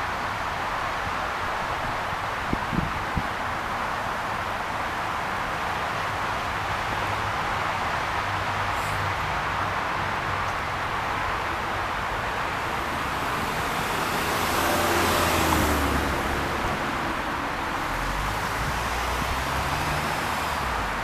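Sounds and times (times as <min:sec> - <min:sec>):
vehicle passing by: 0:12.2 - 0:21.0.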